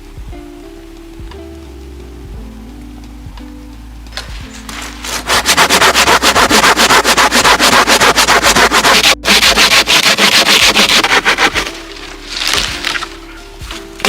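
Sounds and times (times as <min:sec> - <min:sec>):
hand saw cutting wood: 0:05.1 - 0:11.8.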